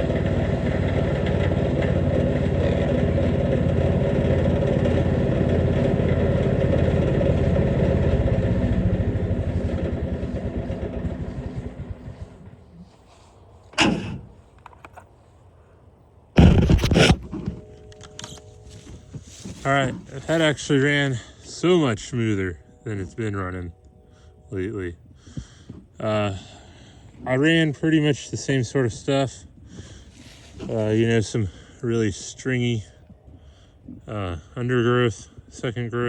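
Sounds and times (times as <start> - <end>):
wood chipper engine running: 0.0 - 15.0, 29.7 - 32.8
loud short clatters: 16.4 - 18.4.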